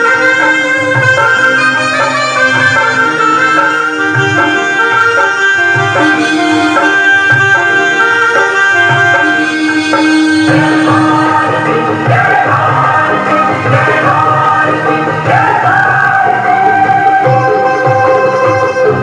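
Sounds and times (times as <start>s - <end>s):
saxophone melody: 0.0s - 15.3s, 15.9s - 19.0s
tabla drum rhythm: 0.0s - 19.0s.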